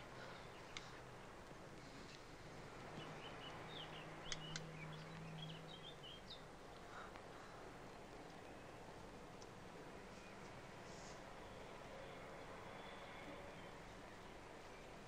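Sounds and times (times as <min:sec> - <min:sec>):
small birds chirping: 0:00.0 - 0:15.0
steady background hiss: 0:00.0 - 0:15.0
sharp clicks: 0:04.2 - 0:05.3.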